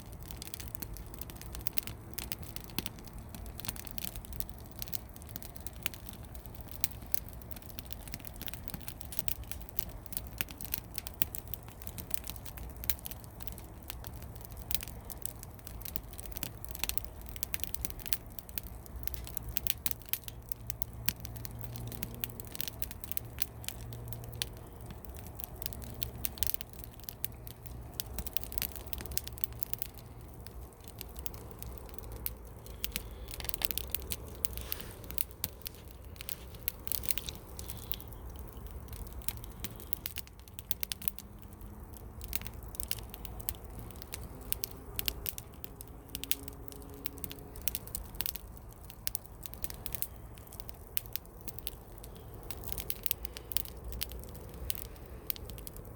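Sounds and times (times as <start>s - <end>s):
campfire crackling and popping: 0.0s - 55.9s
low steady rumble: 0.0s - 55.9s.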